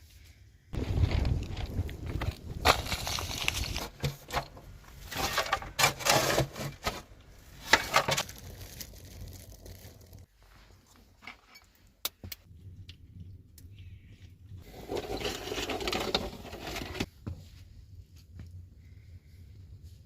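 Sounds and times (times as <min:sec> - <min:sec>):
rough scraping and rubbing: 0:00.8 - 0:10.3, 0:14.6 - 0:17.1.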